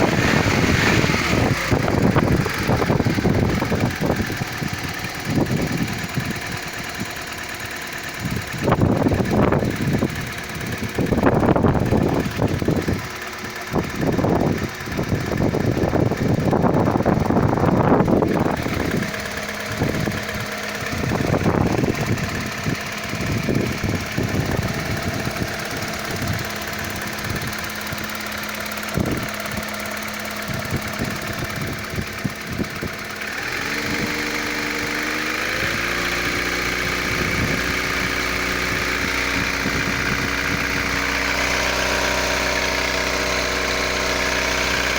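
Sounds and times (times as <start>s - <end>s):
car engine running: 0.0s - 44.9s
engine knocking: 0.0s - 44.9s.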